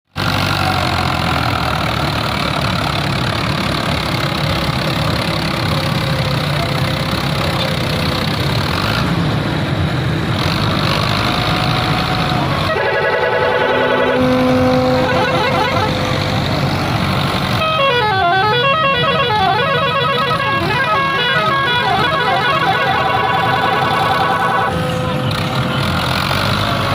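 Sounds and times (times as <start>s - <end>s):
tractor diesel engine running: 0.1s - 26.9s
musical horns playing: 12.6s - 16.1s, 17.6s - 25.4s.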